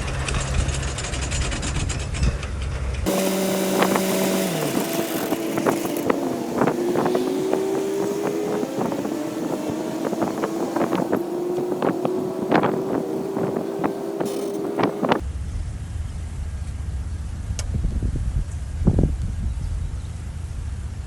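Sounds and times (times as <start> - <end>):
diesel engine running: 3.1 - 17.4.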